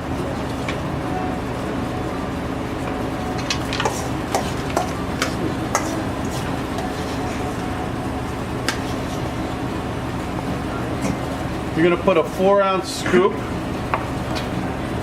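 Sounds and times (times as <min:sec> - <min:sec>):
kitchen machine hum: 0:00.0 - 0:15.0
utensils clicking and tapping: 0:03.4 - 0:06.9.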